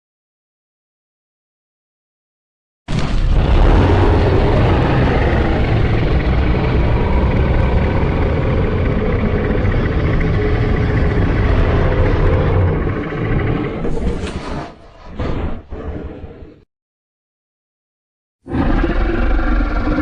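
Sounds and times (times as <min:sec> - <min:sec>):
deep rumbling monster roar: 0:02.9 - 0:16.6, 0:18.4 - 0:20.0.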